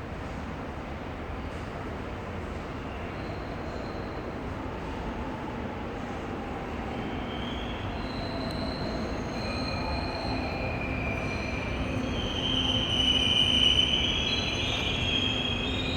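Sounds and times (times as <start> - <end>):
high wheel squeal: 7.1 - 15.9.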